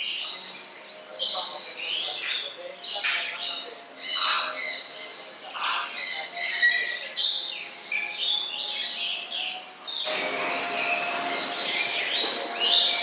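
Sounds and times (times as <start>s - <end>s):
loud rushing noise: 10.1s - 13.0s.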